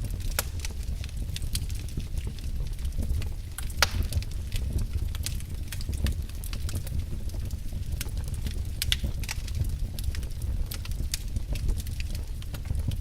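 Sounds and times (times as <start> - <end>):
low rumble of flames: 0.0 - 13.0
wood fire crackling: 0.0 - 13.0
sharp pops and snaps: 2.3 - 6.9, 8.0 - 13.0.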